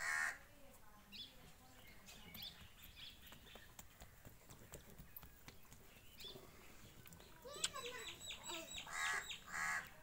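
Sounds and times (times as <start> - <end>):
faint bird chirps: 4.8 - 9.5.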